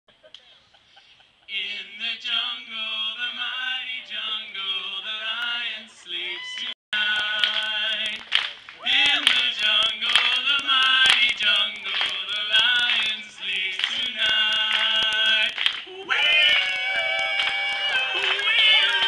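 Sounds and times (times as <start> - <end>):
voices singing a cappella: 1.5 - 19.0
sharp claps: 7.0 - 13.2, 13.8 - 15.9, 16.5 - 19.0.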